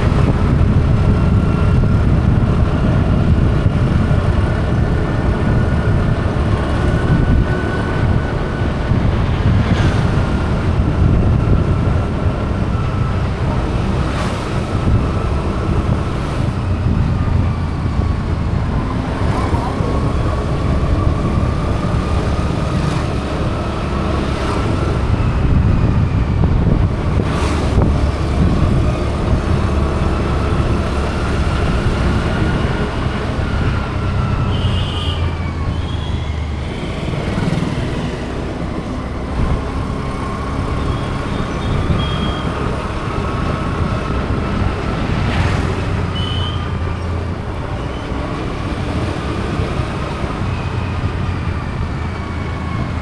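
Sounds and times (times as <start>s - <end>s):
vehicle engine rumble: 0.0s - 53.0s.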